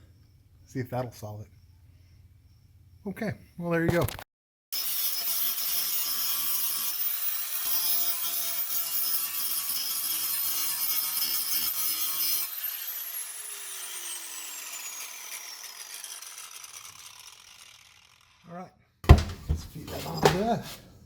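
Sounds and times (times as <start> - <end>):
angle grinder grinding steel: 4.8 - 18.5.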